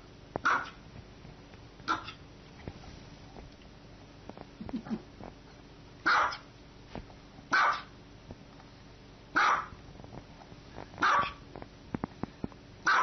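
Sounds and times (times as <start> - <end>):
small dog barking: 0.4 - 0.8, 1.8 - 2.2, 6.0 - 6.5, 7.5 - 7.9, 9.3 - 9.8, 11.0 - 11.4.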